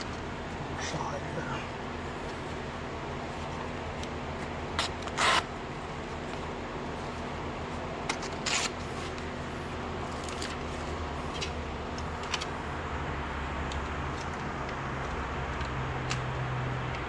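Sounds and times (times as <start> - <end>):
low mechanical hum: 0.0 - 17.0
scrape or rip: 4.8 - 5.5, 8.4 - 9.1.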